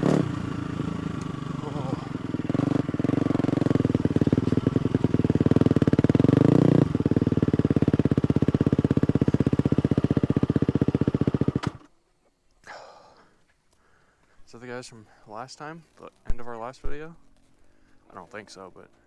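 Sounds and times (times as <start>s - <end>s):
dirt bike engine running: 0.0s - 11.9s.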